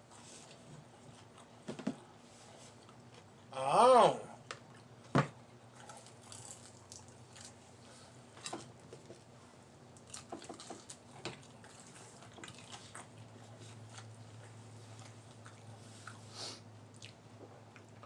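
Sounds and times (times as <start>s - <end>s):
low steady hum: 0.0s - 18.0s
people chewing: 4.6s - 18.0s.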